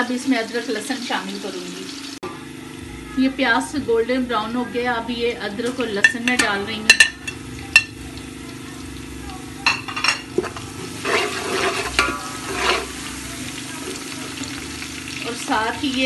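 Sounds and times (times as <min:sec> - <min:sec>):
garlic and ginger sizzling in oil: 0:00.0 - 0:16.0
spatula scraping a steel pot: 0:10.4 - 0:14.6.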